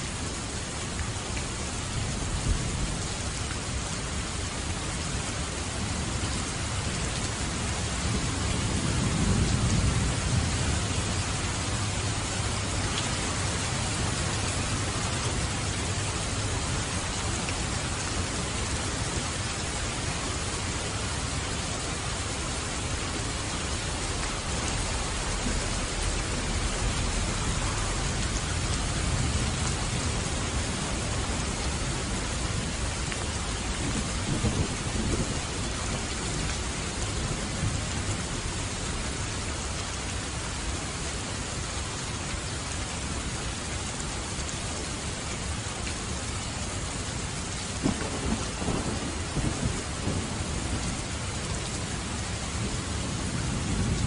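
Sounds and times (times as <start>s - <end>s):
steady rain falling: 0.0s - 54.0s
low thunder rumbling: 7.8s - 16.8s, 22.8s - 38.6s, 47.8s - 54.0s.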